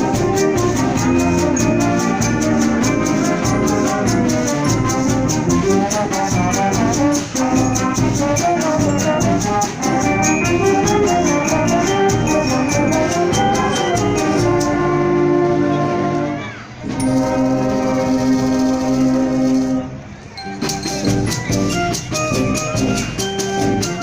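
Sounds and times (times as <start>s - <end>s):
fast percussion beat: 0.0s - 15.0s, 20.4s - 24.0s
brass and woodwinds playing: 0.0s - 24.0s.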